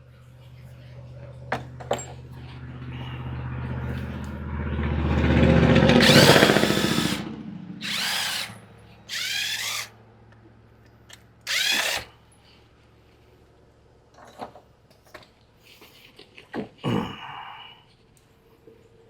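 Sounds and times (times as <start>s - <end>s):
power drill running: 5.9s - 9.9s, 11.5s - 12.1s.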